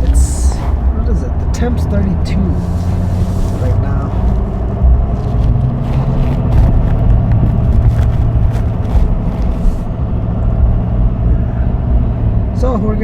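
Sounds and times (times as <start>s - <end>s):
truck engine and road rumble: 0.0s - 13.0s
short crackles and hisses: 2.5s - 10.0s.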